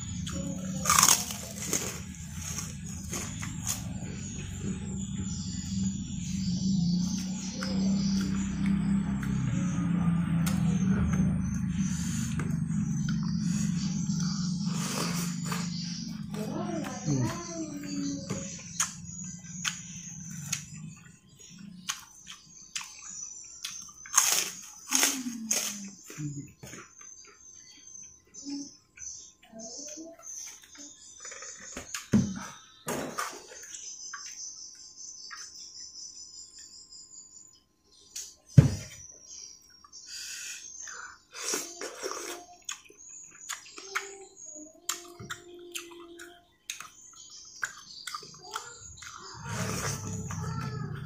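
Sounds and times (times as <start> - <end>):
man chewing and smacking: 0.2 - 3.8, 18.8 - 25.0, 33.6 - 35.8, 41.8 - 43.8, 44.9 - 49.3
loud crunchy bites: 0.8 - 3.9, 23.6 - 25.8
wet chewing and lip-smacking: 21.8 - 25.0, 41.4 - 44.2, 44.9 - 50.7.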